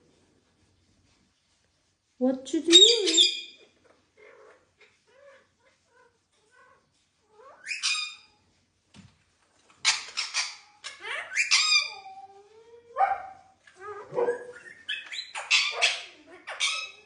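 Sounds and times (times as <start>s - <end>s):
parakeet screeching: 2.7s - 3.6s, 7.4s - 8.3s, 9.8s - 12.2s, 14.5s - 17.0s.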